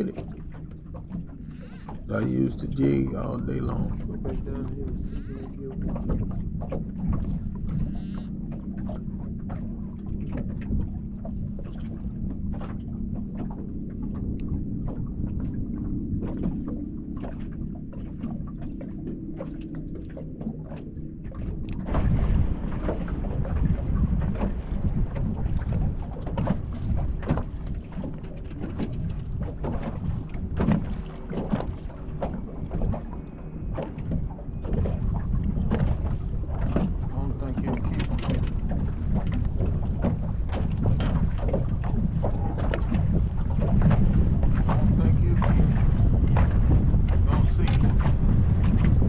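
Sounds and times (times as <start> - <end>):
steady low hum: 0.0 - 9.0
water slapping against hull: 14.2 - 49.0
wind rumbling on microphone: 21.2 - 49.0.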